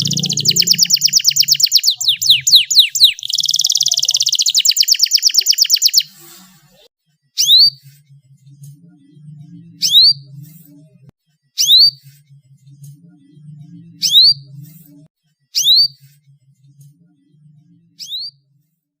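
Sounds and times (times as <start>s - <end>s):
faint background music: 0.0s - 4.3s, 5.2s - 18.9s
canary rising whistle: 0.0s - 6.1s.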